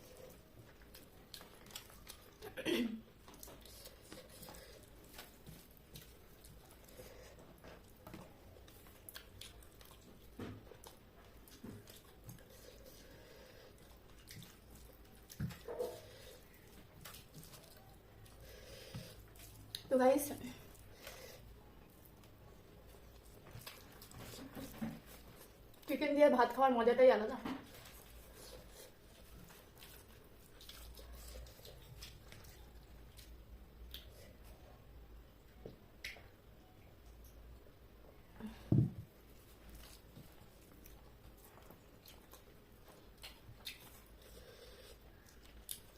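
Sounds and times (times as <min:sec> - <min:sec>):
chewing and mouth smacks: 0:00.0 - 0:02.6, 0:03.2 - 0:19.9, 0:21.8 - 0:25.9, 0:27.7 - 0:34.6, 0:39.3 - 0:45.9
low room hum: 0:00.0 - 0:45.9.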